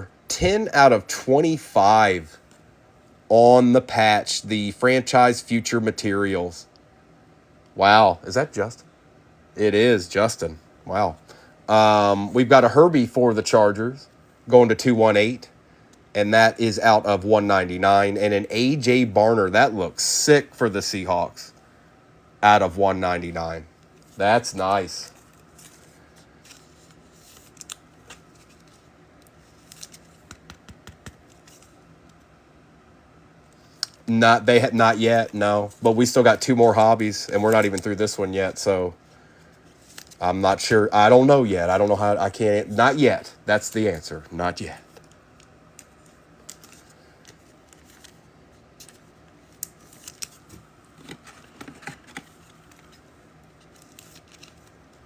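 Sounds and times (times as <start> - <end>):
trading cards being handled: 23.2 - 32.4, 33.5 - 40.8, 44.6 - 55.0.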